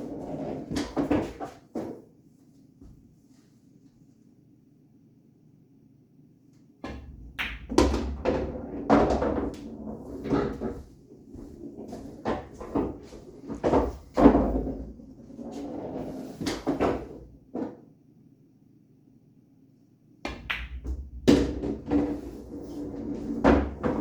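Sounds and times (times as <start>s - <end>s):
balls rolling on table: 6.9s - 17.8s, 20.3s - 24.0s
pool balls clacking: 6.9s - 17.8s, 20.3s - 24.0s.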